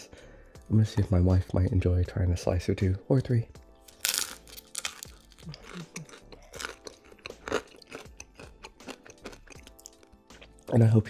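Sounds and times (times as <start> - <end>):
person crunching crispy crust: 3.9 - 10.6.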